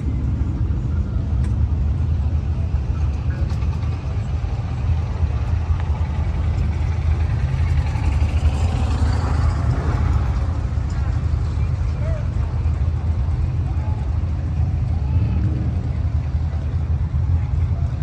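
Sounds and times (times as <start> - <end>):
car engines rumbling: 0.0 - 18.0
engine revving: 3.0 - 12.0.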